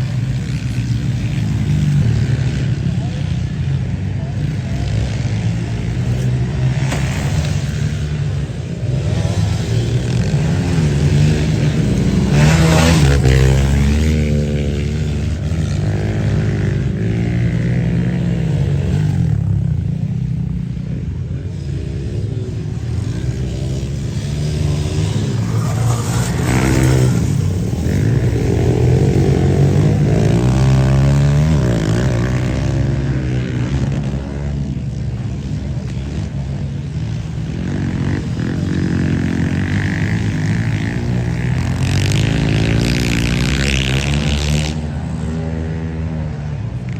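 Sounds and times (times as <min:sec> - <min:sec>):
dirt bike engines revving: 0:00.0 - 0:46.9.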